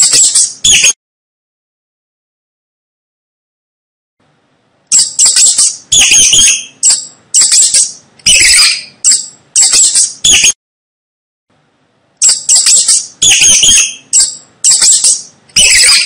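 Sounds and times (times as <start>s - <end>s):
mouse squeaking: 0.0s - 1.0s, 4.9s - 10.6s, 12.2s - 16.0s.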